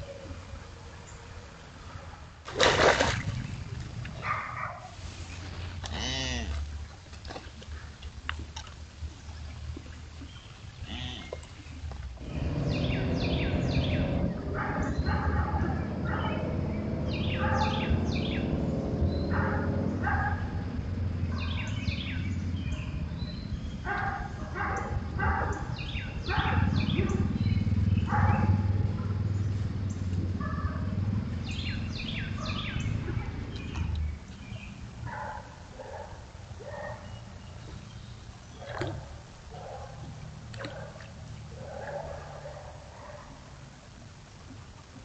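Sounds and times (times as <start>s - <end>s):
songbirds calling: 9.0s - 43.5s
steady low rumble: 11.7s - 35.1s.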